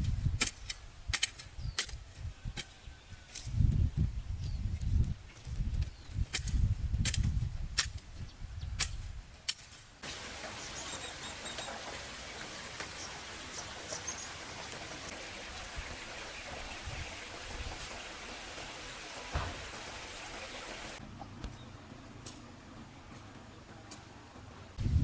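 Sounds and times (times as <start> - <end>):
rain hissing: 10.0 - 21.0.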